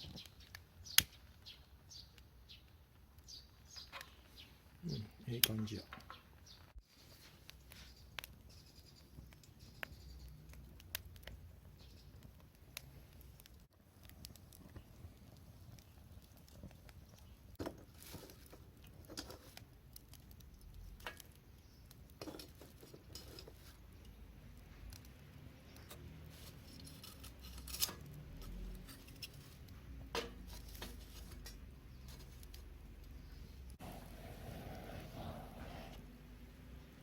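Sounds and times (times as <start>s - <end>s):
sharp pops of fire: 0.0s - 2.2s
wood fire crackling: 0.0s - 37.0s.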